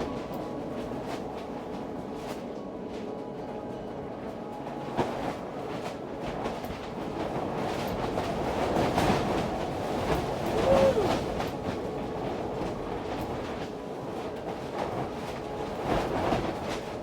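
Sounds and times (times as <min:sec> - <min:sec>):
wind buffeting a cover: 0:04.9 - 0:17.0.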